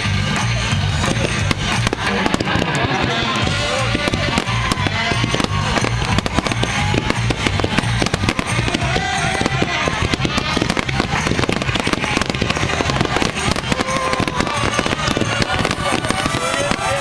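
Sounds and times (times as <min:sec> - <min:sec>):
fireworks bursting and crackling: 0:00.0 - 0:17.0
music with steady beat: 0:00.0 - 0:17.0.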